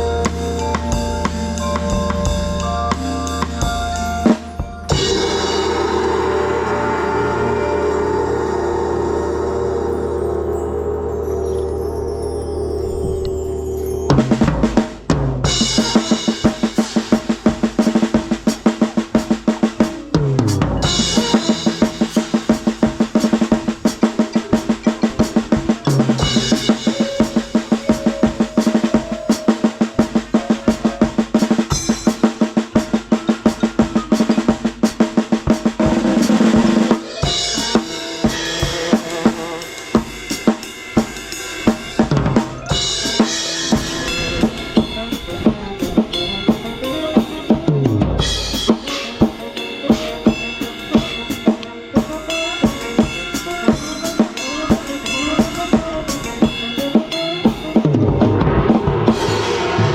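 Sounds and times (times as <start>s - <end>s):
snare and bass drum beat: 0.0s - 6.2s, 14.2s - 59.9s
marching band wind chords: 0.0s - 11.5s, 14.1s - 59.9s
low swell: 4.9s - 14.3s, 57.9s - 59.9s.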